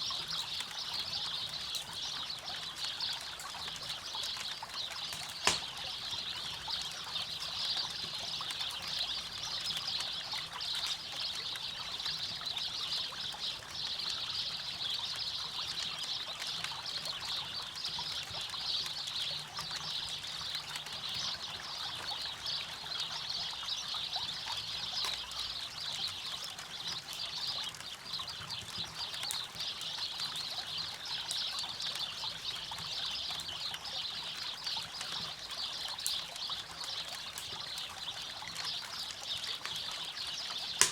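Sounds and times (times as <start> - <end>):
campfire crackling: 0.0 - 12.8, 23.9 - 40.9.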